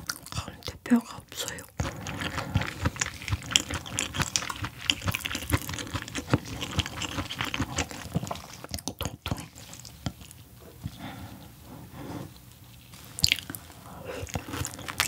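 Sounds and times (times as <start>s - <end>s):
wet chewing clicks and smacks: 0.0s - 0.5s, 1.4s - 10.9s, 13.2s - 15.0s.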